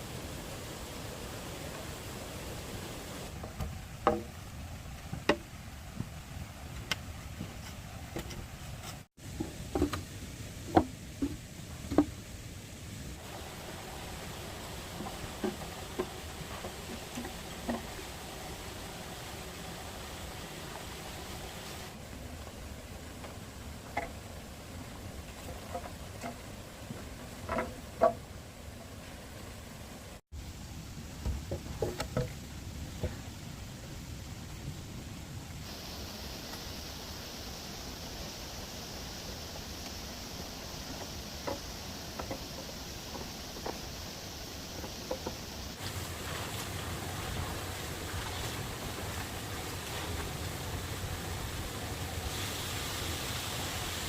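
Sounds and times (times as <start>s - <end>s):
steady low background noise: 0.0s - 54.0s
bamboo knocks: 3.6s - 4.3s.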